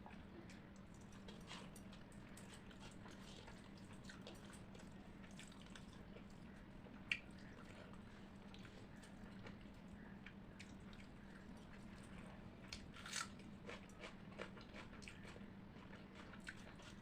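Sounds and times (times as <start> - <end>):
faint steady hum: 0.0 - 17.0
wet chewing and mouth sounds: 0.0 - 17.0.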